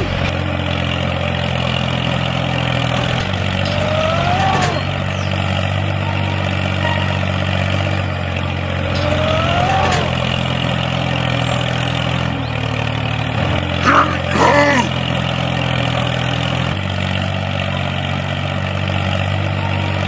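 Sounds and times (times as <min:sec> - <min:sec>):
tractor engine humming: 0:00.0 - 0:20.0
rising and falling whine: 0:03.6 - 0:07.3.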